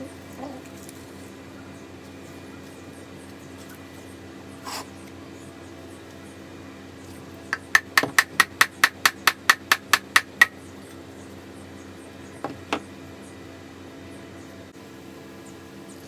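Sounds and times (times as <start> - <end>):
hammer tapping on metal: 7.6 - 10.6.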